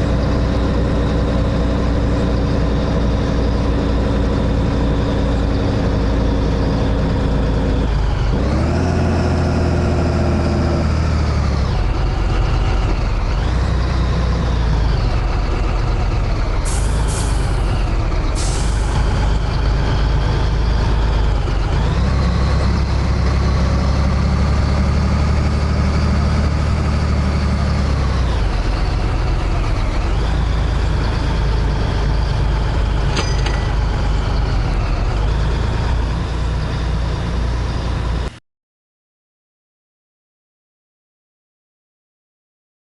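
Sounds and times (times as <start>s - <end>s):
truck diesel engine under load: 0.0s - 38.4s
truck air hisses: 18.4s - 18.9s.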